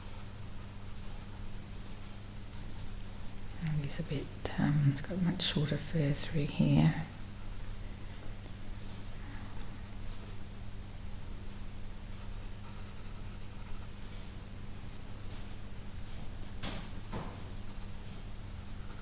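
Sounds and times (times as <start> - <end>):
pencil scratching on paper: 0.0 - 2.0, 6.6 - 7.7, 12.2 - 13.9, 16.9 - 19.0.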